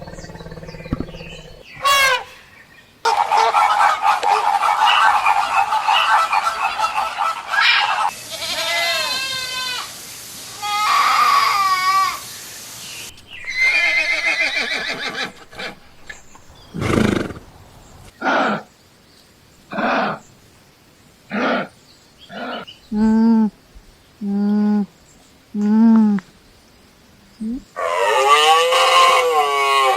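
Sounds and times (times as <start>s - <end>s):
animal bleating: 8.3s - 9.9s.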